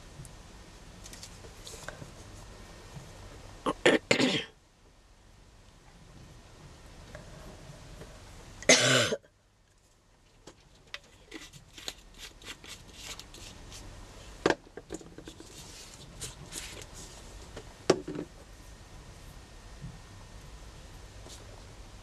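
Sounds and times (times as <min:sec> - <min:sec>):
hands scratching and rustling paper: 0:09.8 - 0:17.7.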